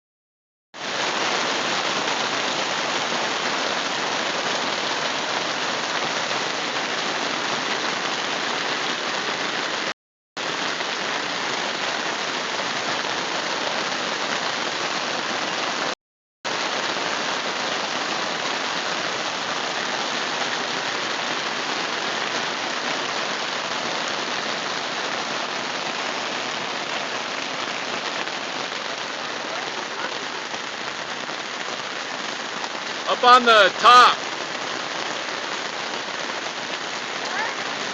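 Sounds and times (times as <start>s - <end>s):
rain falling: 0.8s - 37.9s.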